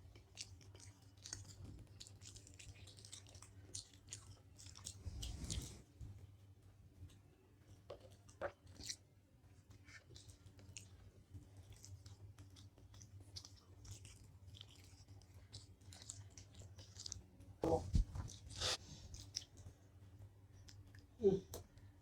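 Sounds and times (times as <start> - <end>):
faint chewing: 0.0 - 22.0
low steady hum: 0.0 - 22.0.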